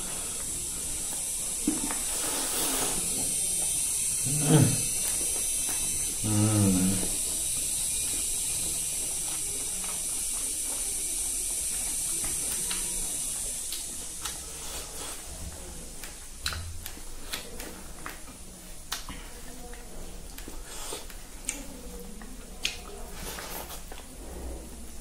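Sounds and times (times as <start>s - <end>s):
man chewing wetly: 0.0s - 25.0s
steady high hiss: 0.0s - 25.0s.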